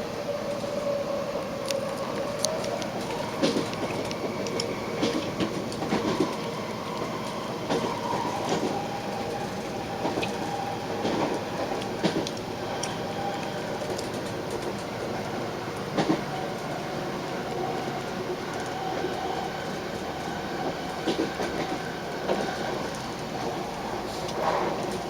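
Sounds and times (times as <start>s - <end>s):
train rumble inside carriage: 0.0s - 25.0s
train wheel clatter: 0.0s - 25.0s.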